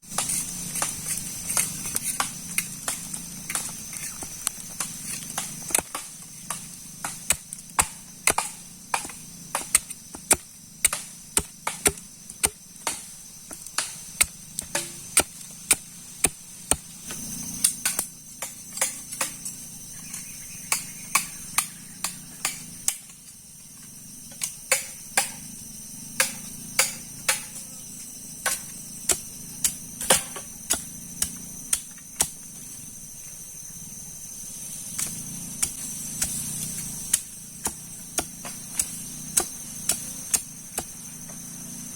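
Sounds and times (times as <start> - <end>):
insects chirping: 0.0 - 41.9
sharp knocks: 5.4 - 15.4, 26.2 - 27.6.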